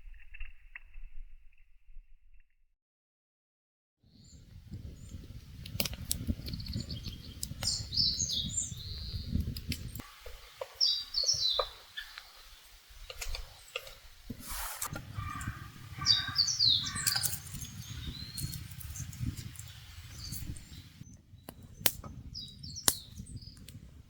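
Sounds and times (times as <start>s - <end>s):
small birds chirping: 4.1s - 24.0s.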